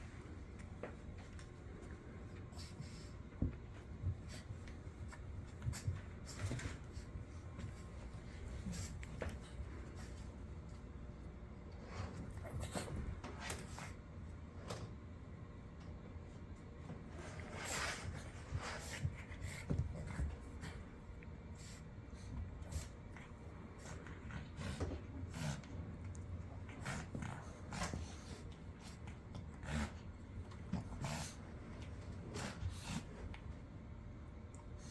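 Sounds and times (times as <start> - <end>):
dogs snorting and grunting: 26.6 - 31.6.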